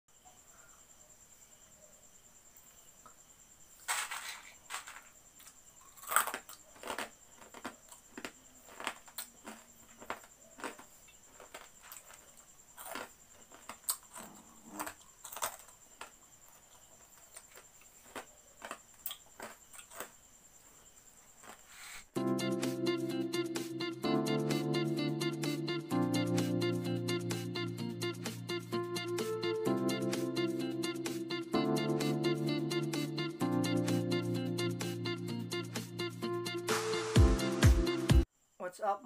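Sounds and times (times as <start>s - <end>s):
fried corn crunching while chewed: 4.8s - 20.2s, 21.4s - 21.8s.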